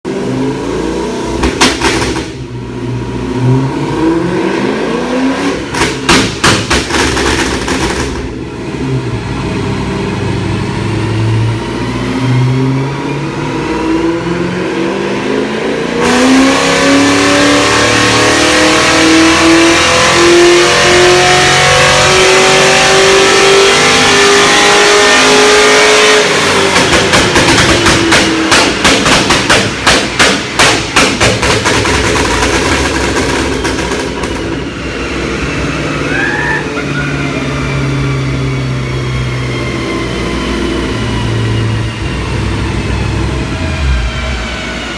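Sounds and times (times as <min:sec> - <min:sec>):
car engine revving: 0:00.1 - 0:44.9
exhaust pops and crackles: 0:01.4 - 0:02.4, 0:05.7 - 0:08.4, 0:26.7 - 0:34.6.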